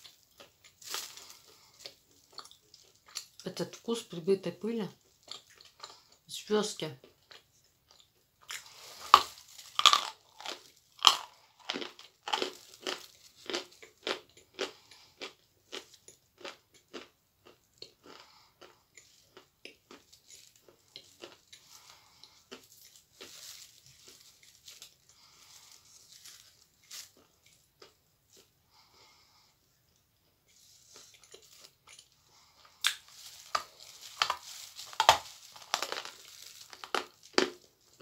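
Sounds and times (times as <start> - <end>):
crunchy chewing: 0.0 - 3.4, 5.0 - 6.2, 7.0 - 38.0
crunchy bite: 8.4 - 17.1, 32.7 - 37.6.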